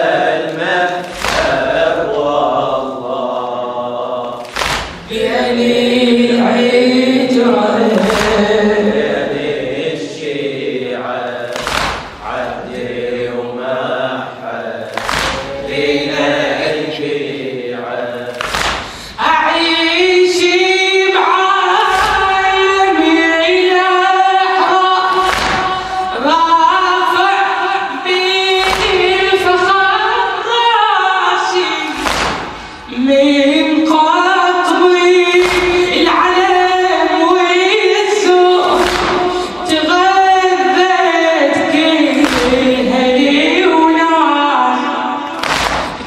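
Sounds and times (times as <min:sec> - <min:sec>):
men chanting a refrain: 0:00.0 - 0:19.6.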